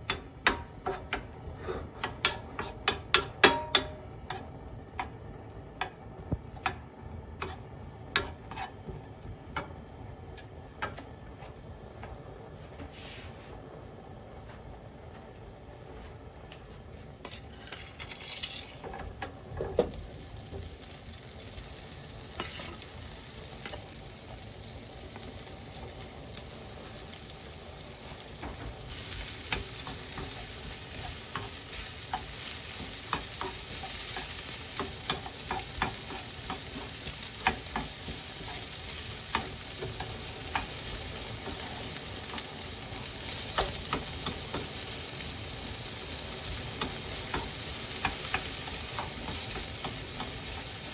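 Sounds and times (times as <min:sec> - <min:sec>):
utensil clicking on pan: 0:00.0 - 0:01.4, 0:02.0 - 0:05.2, 0:05.8 - 0:08.8, 0:28.4 - 0:44.9, 0:46.4 - 0:50.9
rice sizzling in a frying pan: 0:00.0 - 0:50.9
spatula scraping a pan: 0:00.5 - 0:04.5, 0:07.4 - 0:08.9, 0:17.2 - 0:19.0, 0:22.4 - 0:22.9, 0:28.9 - 0:42.4.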